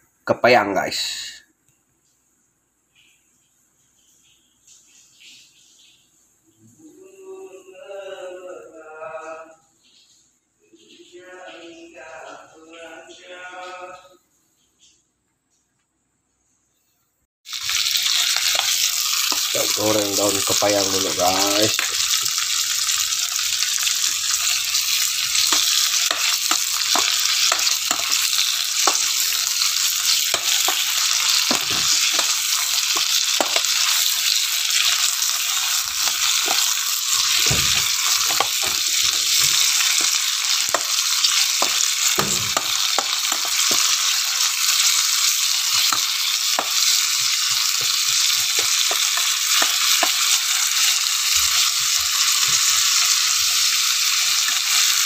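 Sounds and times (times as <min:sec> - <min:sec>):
leaves sizzling in oil: 0:17.4 - 0:55.0
spoon scraping a pot: 0:23.8 - 0:44.3.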